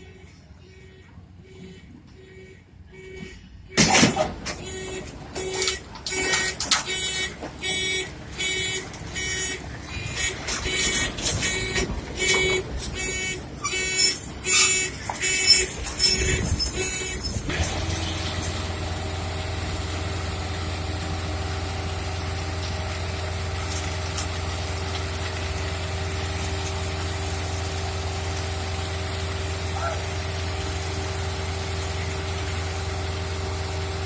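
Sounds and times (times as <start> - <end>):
heavy engine running: 3.6 - 34.0
loud repeated beeps: 4.6 - 17.5.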